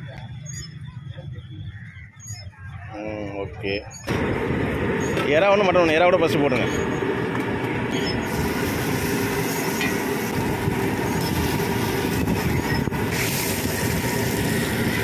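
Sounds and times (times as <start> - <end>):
food sizzling on a griddle: 8.2 - 15.0.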